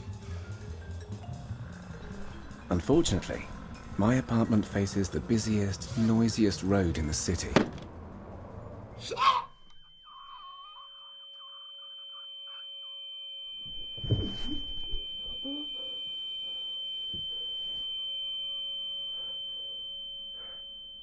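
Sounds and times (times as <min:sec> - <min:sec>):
low steady tones: 0:00.0 - 0:09.0
high-pitched electronic sine tone: 0:09.7 - 0:21.0.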